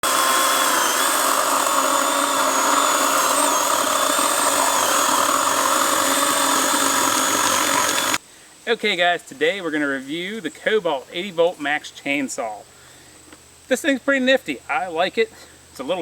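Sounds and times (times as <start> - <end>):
electric chainsaw whine: 0.0 - 8.2.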